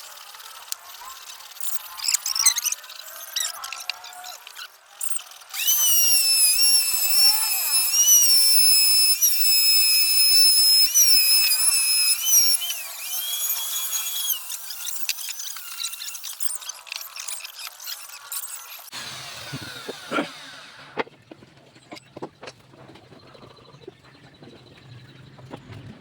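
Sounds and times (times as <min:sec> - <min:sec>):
power tool motor whining: 0:04.2 - 0:21.1.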